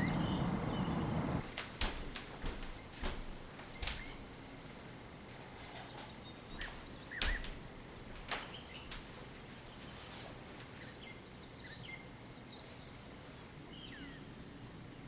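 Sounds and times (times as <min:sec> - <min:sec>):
small birds chirping: 0:00.0 - 0:01.4.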